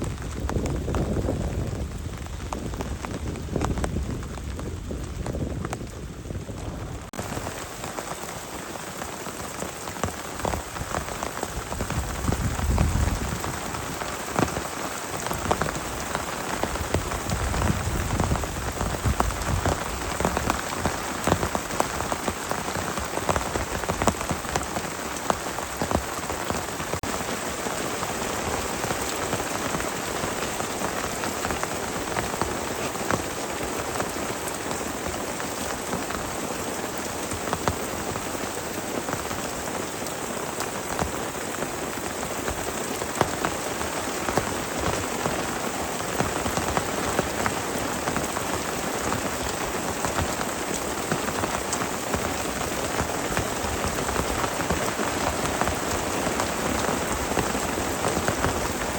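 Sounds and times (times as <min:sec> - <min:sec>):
heavy rain on a tent: 0:00.0 - 0:58.9.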